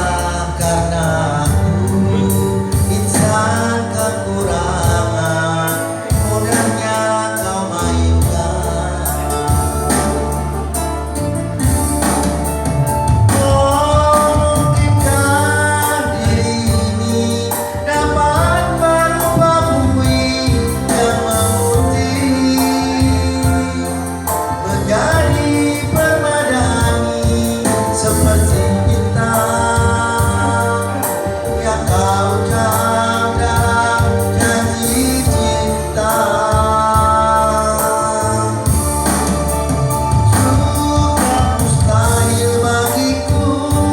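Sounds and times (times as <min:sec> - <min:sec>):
instrumental backing music: 0:00.0 - 0:43.9
person singing: 0:00.0 - 0:43.9.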